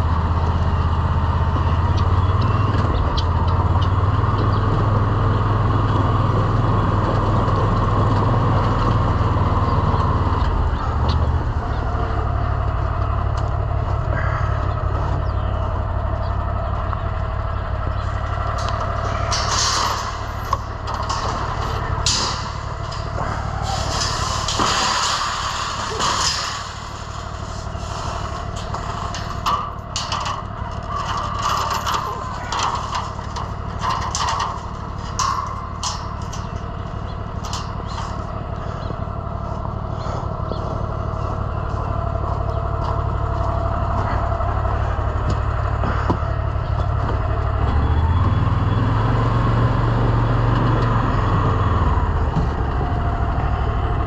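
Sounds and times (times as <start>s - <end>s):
vehicle engine running: 0.0s - 54.0s
clatter and knocking: 16.7s - 39.0s.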